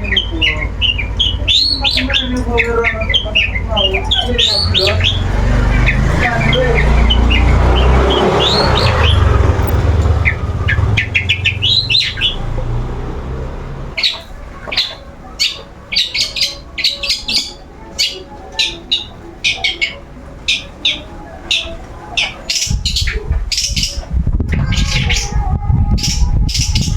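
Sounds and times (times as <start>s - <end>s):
bird calling in sharp chirps: 0.0s - 25.4s
low rumble: 3.2s - 14.0s.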